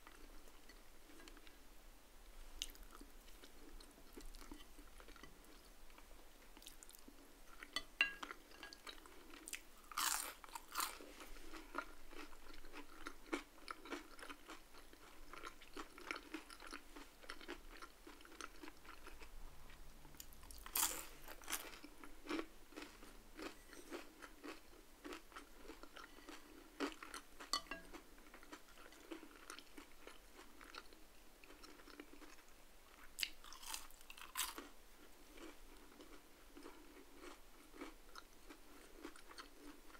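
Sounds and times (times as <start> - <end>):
chewing crunchy fried food: 2.6 - 39.9.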